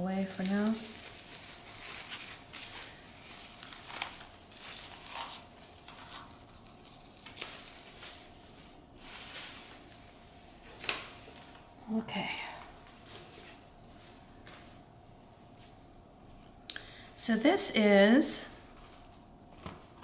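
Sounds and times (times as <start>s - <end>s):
plastic pot crinkling: 0.2s - 9.8s.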